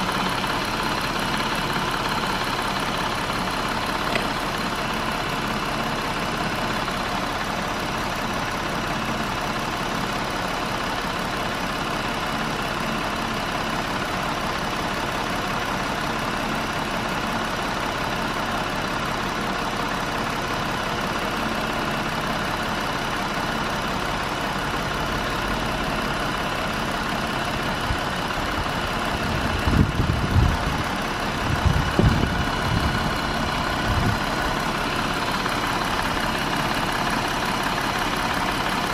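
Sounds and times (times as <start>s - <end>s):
car engine running: 0.0s - 8.5s, 22.2s - 38.9s.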